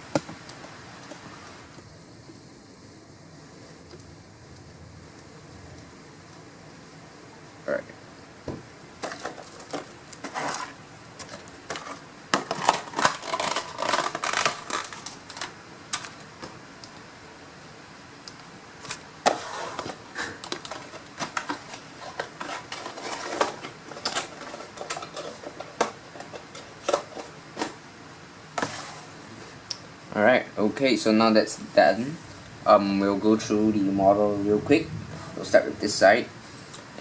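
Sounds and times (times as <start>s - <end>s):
plastic packaging crinkling: 9.0s - 16.2s.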